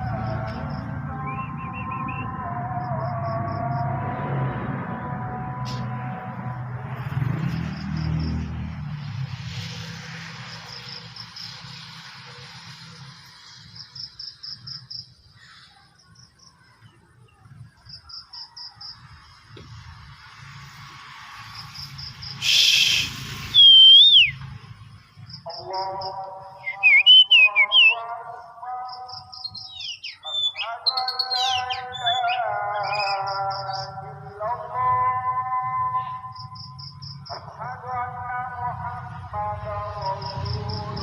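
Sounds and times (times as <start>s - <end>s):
bird whistling gliding notes: 1.2s - 2.4s, 22.3s - 24.4s, 26.6s - 28.0s
brief loud rush of noise: 19.6s - 23.6s
high pulsed bird trill: 21.6s - 24.4s, 25.2s - 28.1s, 28.8s - 34.1s
harsh bird chatter: 25.3s - 28.0s, 28.9s - 34.0s.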